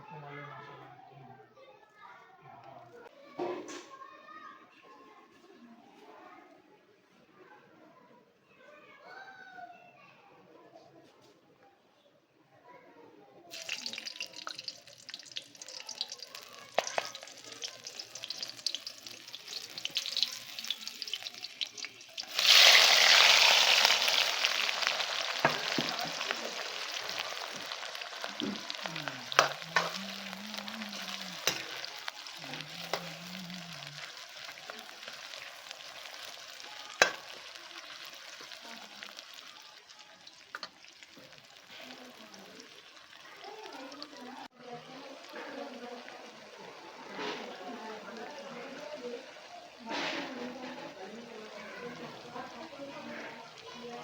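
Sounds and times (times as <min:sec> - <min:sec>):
food sizzling in hot oil: 0:13.5 - 0:54.0.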